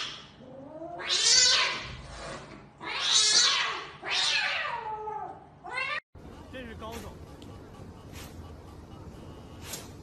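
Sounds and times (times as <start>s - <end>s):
cat yowling: 2.8s - 6.0s.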